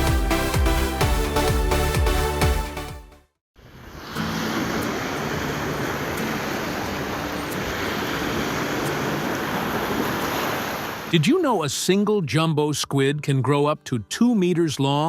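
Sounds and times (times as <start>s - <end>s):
wind: 3.6s - 11.2s
ocean waves: 3.6s - 11.4s.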